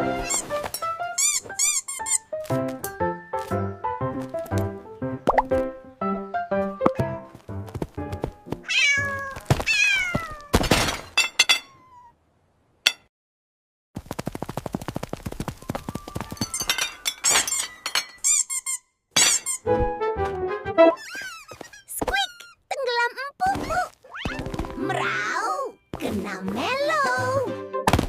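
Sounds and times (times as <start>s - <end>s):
high squeaks: 0.2s - 2.3s, 15.8s - 19.7s, 20.9s - 22.8s, 23.6s - 24.5s
cartoon cat meows: 8.7s - 10.6s, 11.7s - 12.1s, 23.5s - 25.7s.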